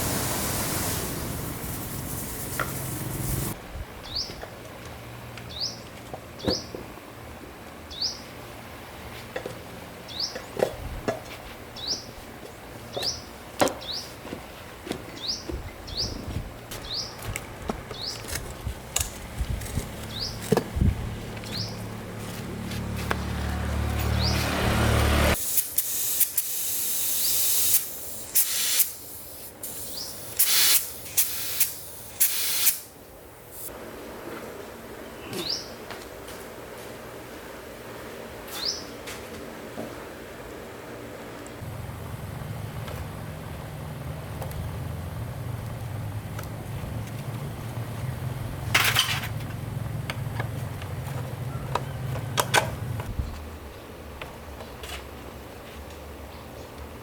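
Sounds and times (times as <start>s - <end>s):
small engine running: 0.0s - 3.6s, 41.6s - 53.1s
spray hissing bursts: 0.0s - 3.6s, 25.2s - 32.9s
low mechanical hum: 14.2s - 25.2s, 33.0s - 57.0s.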